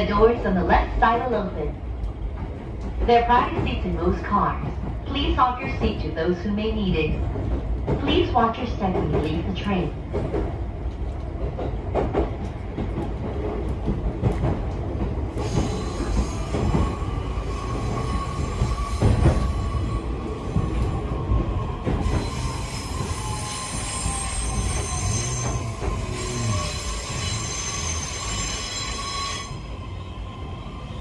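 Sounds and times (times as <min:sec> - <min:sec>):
train wheel and rail rumble: 0:00.0 - 0:31.0
rail-joint clicks: 0:07.4 - 0:21.0, 0:21.8 - 0:29.8
high wheel squeal: 0:15.4 - 0:20.7, 0:22.0 - 0:31.0.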